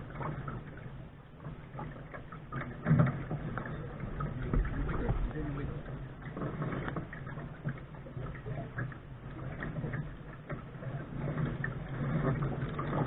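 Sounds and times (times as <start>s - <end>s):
water washing along hull: 0.0s - 13.0s.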